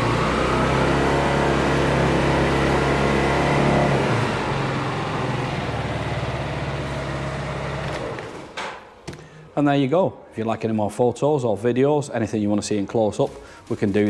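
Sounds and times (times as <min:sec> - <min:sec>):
scooter engine running: 0:00.0 - 0:08.3.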